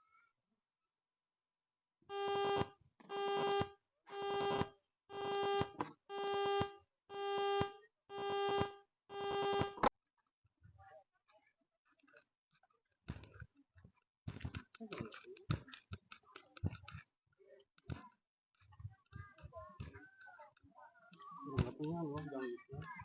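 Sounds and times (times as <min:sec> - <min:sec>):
buzzy electronic beeper: 0:02.1 - 0:09.8.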